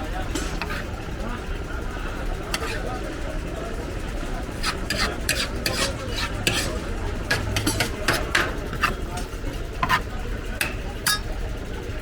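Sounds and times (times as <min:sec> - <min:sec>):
metal utensil scraping a pan: 0:00.4 - 0:01.0, 0:02.5 - 0:02.9, 0:04.5 - 0:11.3.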